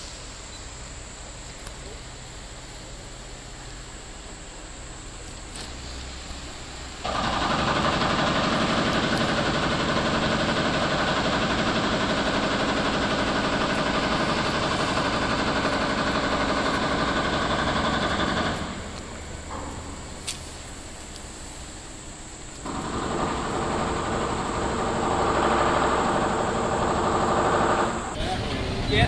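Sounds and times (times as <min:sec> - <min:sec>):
loud engine running: 0:07.0 - 0:20.3, 0:22.6 - 0:29.0.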